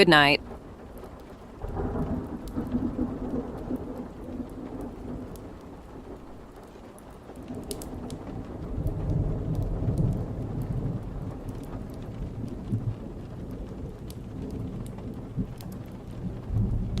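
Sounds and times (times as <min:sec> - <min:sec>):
steady rain: 0:00.0 - 0:17.0
low rolling thunder: 0:00.1 - 0:17.0.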